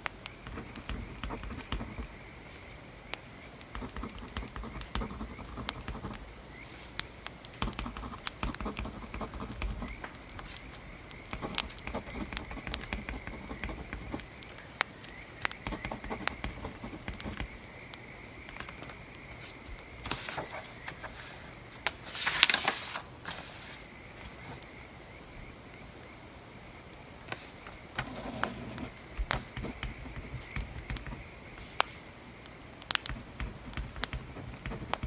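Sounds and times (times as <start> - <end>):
pencil scratching on paper: 0.4 - 2.8, 3.7 - 7.0, 7.6 - 14.4, 15.5 - 17.6, 27.3 - 32.0, 33.0 - 35.0
wood fire crackling: 26.9 - 35.0.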